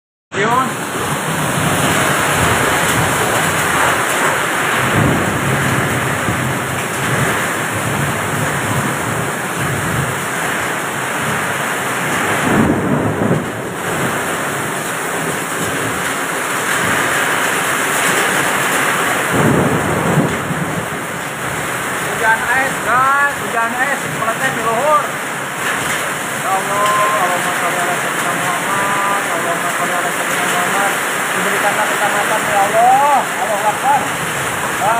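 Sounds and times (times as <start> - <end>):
driving rain: 0.3 - 34.9
strong wind gusts: 0.7 - 34.9.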